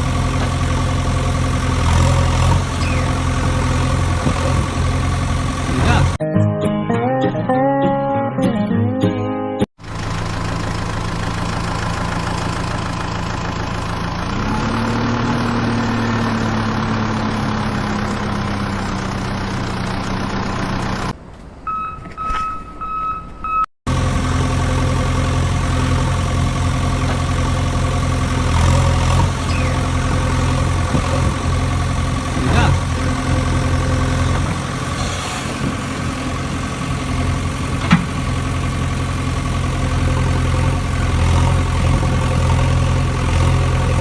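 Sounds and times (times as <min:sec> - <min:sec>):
engine idling: 0:00.0 - 0:06.2, 0:09.8 - 0:21.2, 0:23.9 - 0:44.0
engine running: 0:00.0 - 0:06.2, 0:09.8 - 0:21.6, 0:23.9 - 0:44.0
steady beep-like tone: 0:21.7 - 0:23.7.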